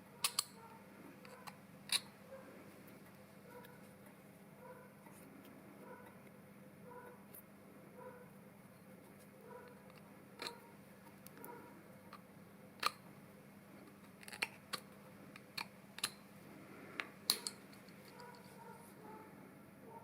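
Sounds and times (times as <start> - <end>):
faint steady hum: 0.0 - 20.0
small metal parts clicking: 0.2 - 0.6, 1.2 - 2.1, 9.6 - 10.6, 14.0 - 16.2, 17.3 - 18.5.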